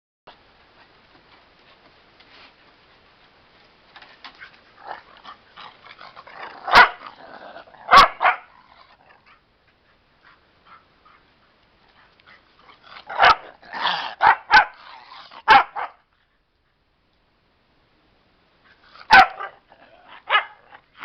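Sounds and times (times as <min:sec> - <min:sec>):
dog barking: 0:06.7 - 0:07.0, 0:07.9 - 0:08.5, 0:13.1 - 0:14.8, 0:15.4 - 0:16.0, 0:19.1 - 0:20.8
dog yipping: 0:07.9 - 0:08.5, 0:13.1 - 0:14.8, 0:19.1 - 0:20.7.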